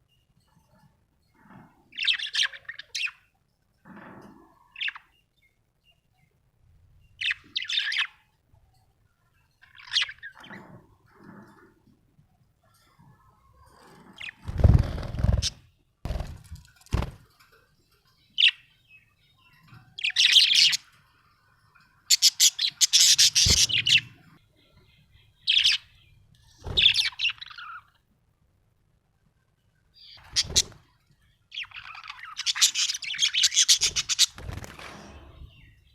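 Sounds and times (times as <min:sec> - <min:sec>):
thuds or rustles: 0:16.1 - 0:17.3
budgerigar chirping: 0:22.1 - 0:24.2.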